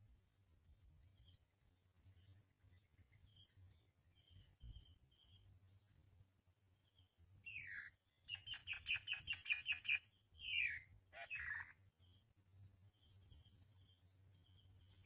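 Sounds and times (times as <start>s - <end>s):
sharp bird chirps: 7.5s - 12.2s.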